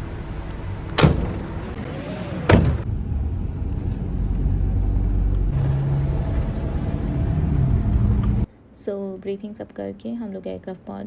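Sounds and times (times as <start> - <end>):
bus engine rumble: 0.0 - 8.5.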